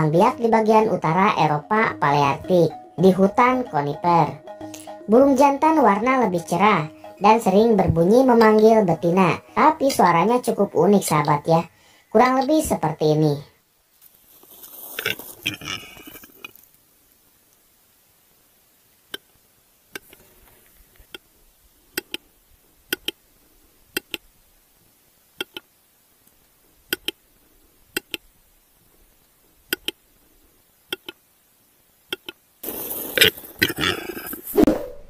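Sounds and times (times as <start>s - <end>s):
bird display call clicks: 22.9s - 23.2s, 25.4s - 25.6s, 26.9s - 27.2s, 29.7s - 30.0s, 30.9s - 31.2s, 32.1s - 32.4s.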